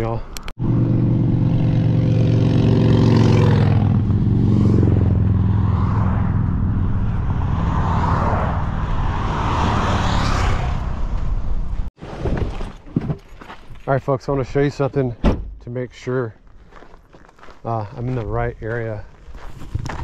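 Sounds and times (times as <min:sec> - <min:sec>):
road and tyre noise: 0:00.0 - 0:20.0
truck engine hum: 0:00.3 - 0:11.9.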